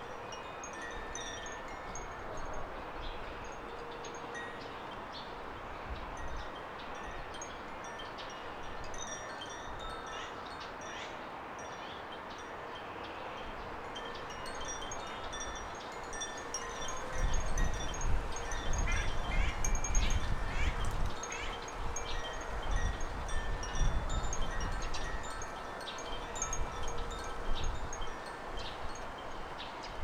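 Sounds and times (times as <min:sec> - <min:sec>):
wind rumbling on microphone: 0:13.5 - 0:30.0.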